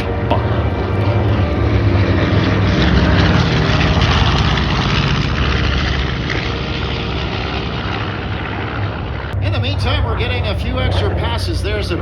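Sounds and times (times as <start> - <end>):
propeller plane engines droning: 0.0 - 12.0.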